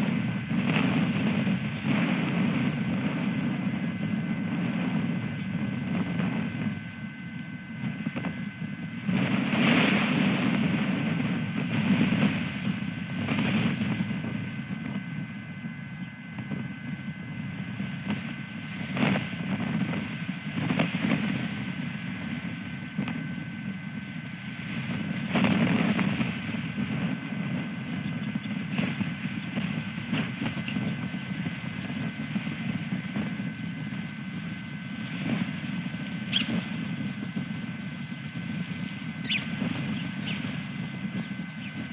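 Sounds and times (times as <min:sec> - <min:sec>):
faint electrical whine: 0:00.0 - 0:41.9
low outdoor rumble: 0:00.0 - 0:41.9
wind buffeting microphone: 0:00.0 - 0:41.9
high bird chirp: 0:36.2 - 0:36.7, 0:38.6 - 0:41.9.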